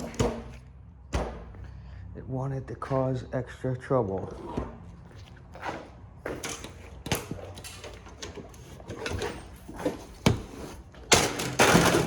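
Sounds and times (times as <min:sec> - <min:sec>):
tools and metal parts rattling: 0:06.2 - 0:12.0.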